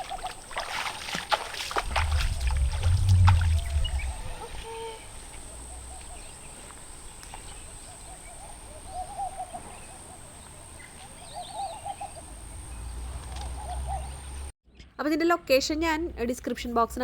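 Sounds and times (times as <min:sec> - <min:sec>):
birds calling: 0:01.8 - 0:14.5.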